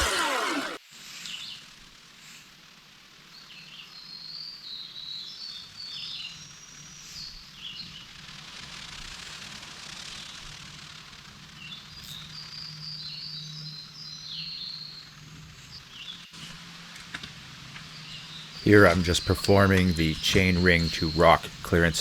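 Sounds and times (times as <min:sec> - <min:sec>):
chainsaw whine: 0:00.0 - 0:00.8, 0:18.6 - 0:22.0
soft forest background: 0:11.3 - 0:22.0
songbirds chirping and trilling: 0:17.8 - 0:22.0.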